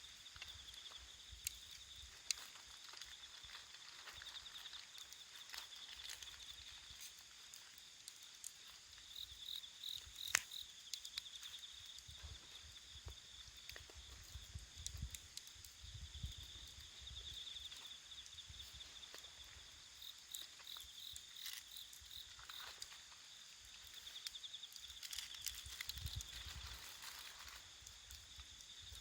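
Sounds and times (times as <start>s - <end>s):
crickets trilling: 0.0s - 29.0s
wood fire crackling: 0.0s - 29.0s.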